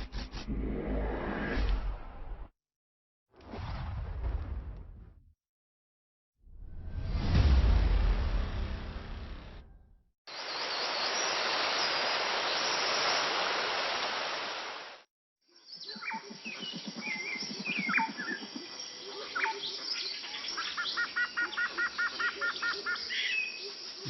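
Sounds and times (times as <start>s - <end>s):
waterfall rushing water: 10.3s - 15.0s
birds calling and chirping: 15.6s - 24.0s.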